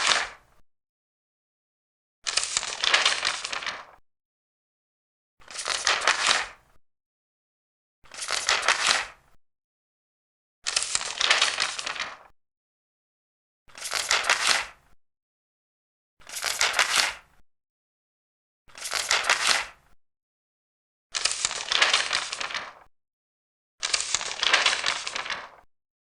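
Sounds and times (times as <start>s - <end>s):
paper pages turning: 2.3s - 4.0s, 5.4s - 6.6s, 8.1s - 9.2s, 10.7s - 12.3s, 13.7s - 14.7s, 16.3s - 17.2s, 18.7s - 19.8s, 21.1s - 22.9s, 23.8s - 25.7s.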